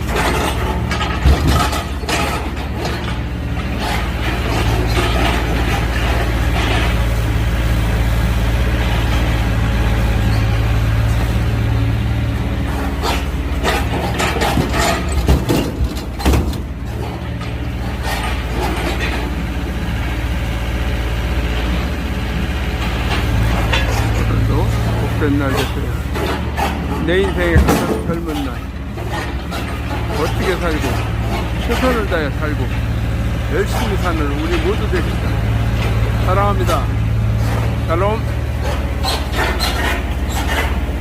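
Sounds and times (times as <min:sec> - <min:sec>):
metal knocks and clanks: 0:00.0 - 0:07.2, 0:12.6 - 0:19.5, 0:22.8 - 0:41.0
excavator diesel engine running: 0:00.0 - 0:41.0.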